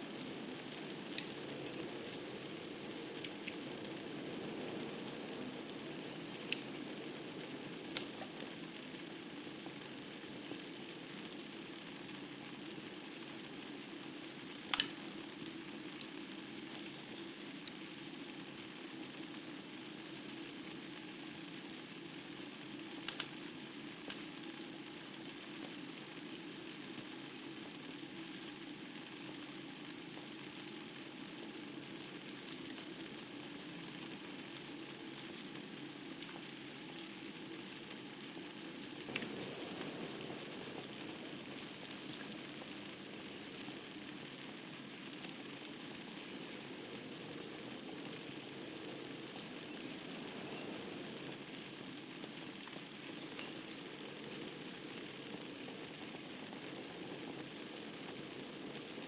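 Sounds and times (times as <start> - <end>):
burning logs popping: 0.0 - 11.6, 14.5 - 15.2, 23.0 - 23.4, 37.9 - 59.0
wood fire crackling: 0.0 - 59.0.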